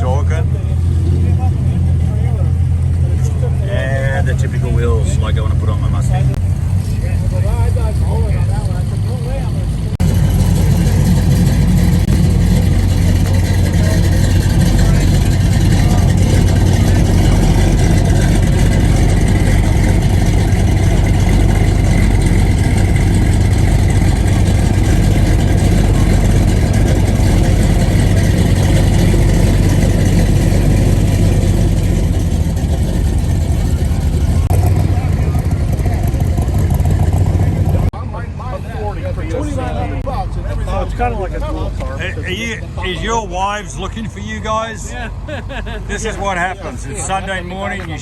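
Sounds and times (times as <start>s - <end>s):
car engine idling: 0.0s - 38.2s.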